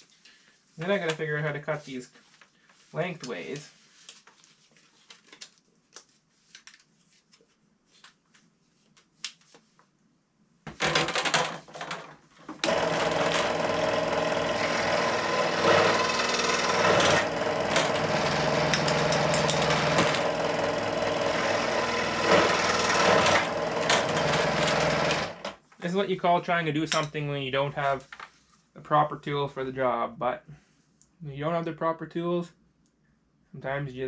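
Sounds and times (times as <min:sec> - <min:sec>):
power saw cutting pipe: 0:12.6 - 0:25.5.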